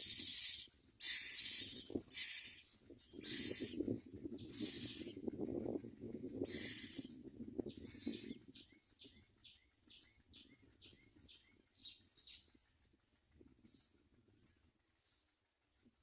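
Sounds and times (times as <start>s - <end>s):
birds giving high chirps: 0.0s - 5.2s, 6.3s - 9.2s.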